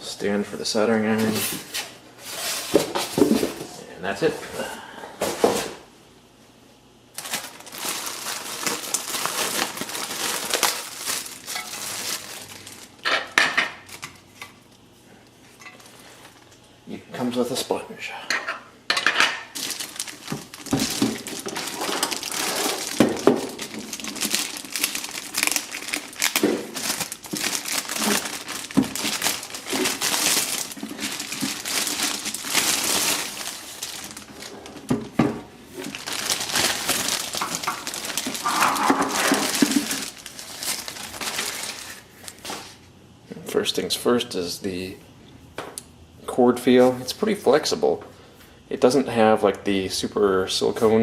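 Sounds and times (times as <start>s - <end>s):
plastic packaging crinkling: 7.1s - 13.1s, 19.5s - 42.8s.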